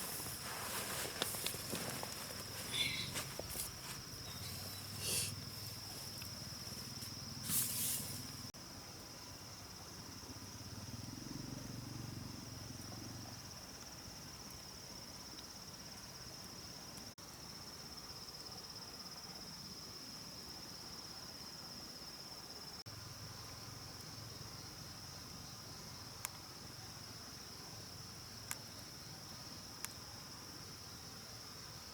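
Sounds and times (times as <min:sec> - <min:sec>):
insect chorus trilling: 0:00.0 - 0:08.5.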